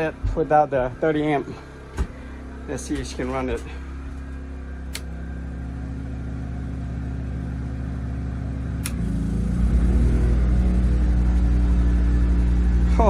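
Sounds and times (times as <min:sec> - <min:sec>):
air conditioner compressor: 0:00.0 - 0:13.0
portable generator running: 0:00.0 - 0:13.0
click: 0:08.8 - 0:09.0.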